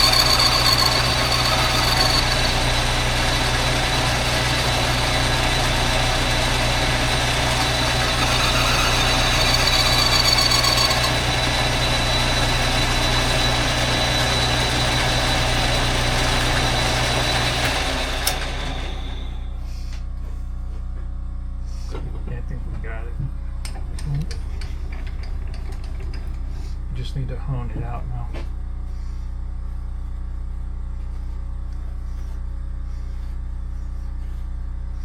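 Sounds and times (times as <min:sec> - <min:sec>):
metal lathe drone and whine: 0:00.0 - 0:19.6.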